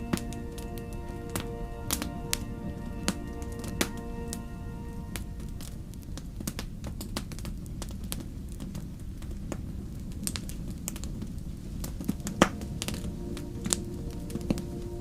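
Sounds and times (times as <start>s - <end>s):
wood fire crackling: 5.1s - 15.0s.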